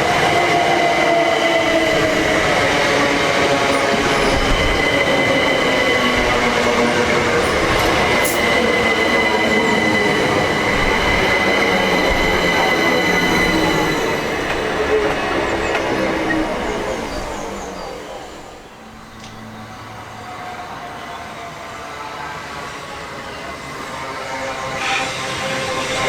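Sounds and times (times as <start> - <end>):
electric train rumble and rail noise: 0.0 - 26.0
train motor whine: 3.4 - 20.8.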